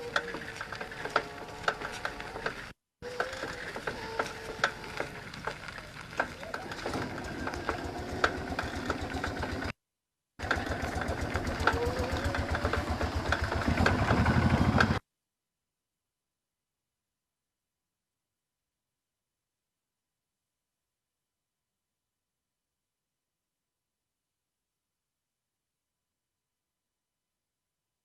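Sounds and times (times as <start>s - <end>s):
rapid mechanical clicking: 10.4s - 15.0s.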